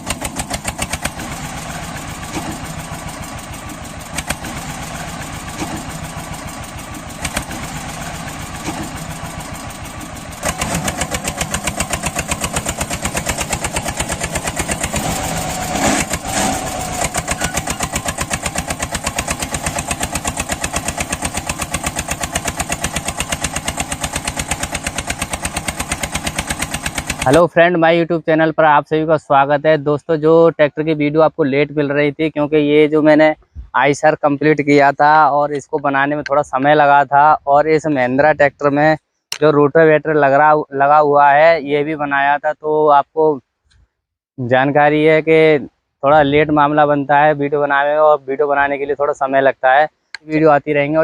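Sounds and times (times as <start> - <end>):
tractor engine thudding: 0.0 - 27.4.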